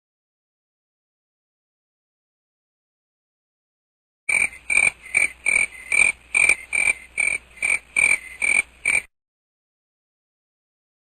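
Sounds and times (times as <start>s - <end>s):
crickets chirping: 4.3s - 9.1s.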